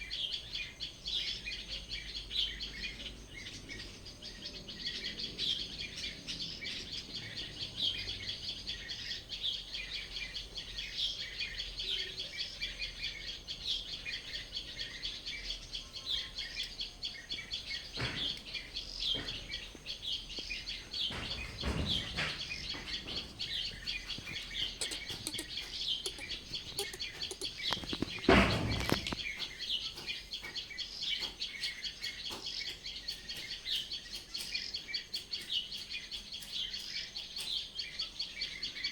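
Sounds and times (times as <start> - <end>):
small birds chirping: 0.0 - 38.9
dull thumps: 17.4 - 29.3.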